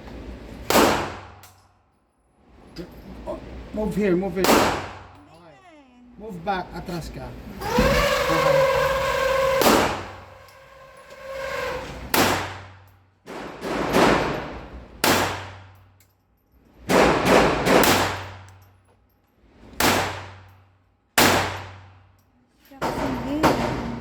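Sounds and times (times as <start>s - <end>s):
pistol shots: 0.7s - 1.4s, 4.4s - 5.1s, 15.0s - 15.6s, 16.9s - 18.4s, 19.8s - 20.4s, 21.2s - 21.8s.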